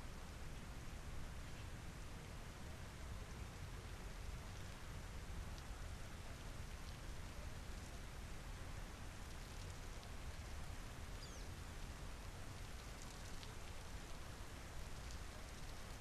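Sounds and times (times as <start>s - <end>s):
raindrops ticking on surfaces: 0.0s - 16.0s
steady rain falling: 0.0s - 16.0s
faint high bird chirp: 11.2s - 11.6s.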